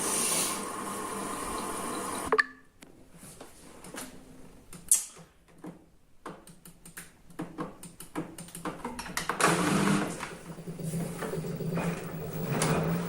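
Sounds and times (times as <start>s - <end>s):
washing machine motor humming: 0.0s - 2.3s, 9.4s - 13.0s.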